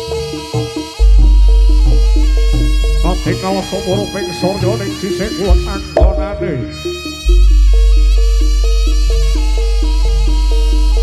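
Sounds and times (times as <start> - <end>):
gamelan music over loudspeakers: 0.0 - 11.0
deep gong stroke: 5.8 - 6.8.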